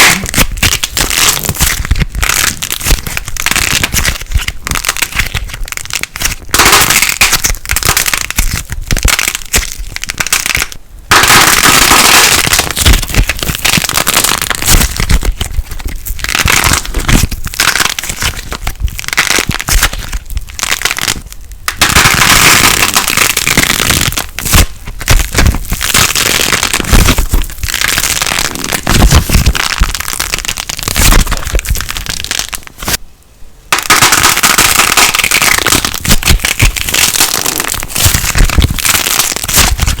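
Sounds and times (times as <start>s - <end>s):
plasticine crackling and popping: 0.0s - 33.0s, 33.7s - 40.0s.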